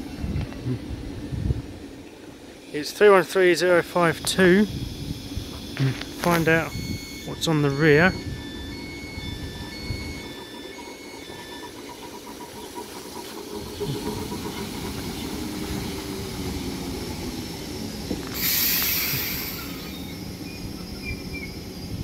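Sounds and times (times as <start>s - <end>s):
train low rumble: 0.0s - 22.0s
hiss of released air: 16.0s - 20.2s.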